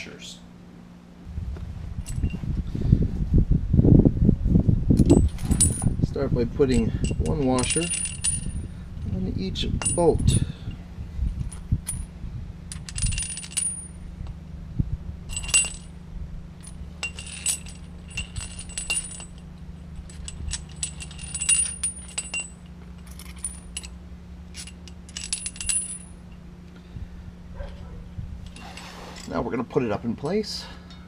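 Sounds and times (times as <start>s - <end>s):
low hum: 0.0s - 29.3s
metal washers clinking on bolts: 5.0s - 5.9s, 6.5s - 10.5s, 12.7s - 14.0s, 15.3s - 16.0s, 16.6s - 26.5s.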